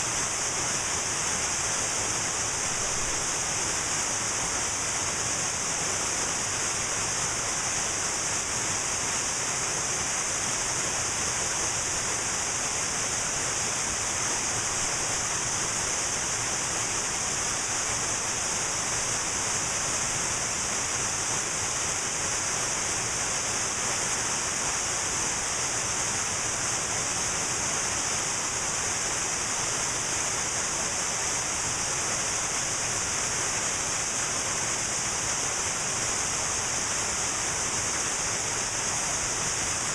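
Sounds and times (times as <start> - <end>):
waterfall rushing: 0.1 - 39.9.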